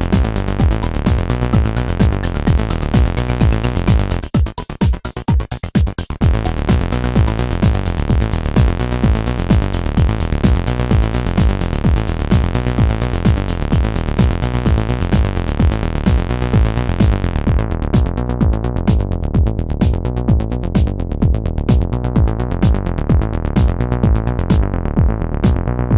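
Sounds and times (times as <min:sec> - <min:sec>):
acid synth bassline: 0:00.0 - 0:25.9
drum machine beat: 0:00.0 - 0:25.9.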